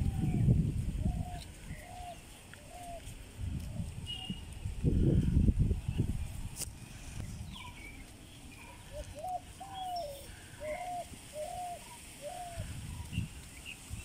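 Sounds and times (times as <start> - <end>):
wind rumble on microphone: 0.0 - 8.1, 12.2 - 14.0
small birds chirping: 0.0 - 14.0
bird calling arched notes: 7.5 - 13.8.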